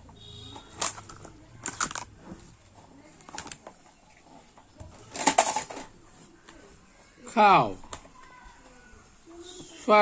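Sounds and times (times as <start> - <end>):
plastic toys clattering: 0.4 - 6.7.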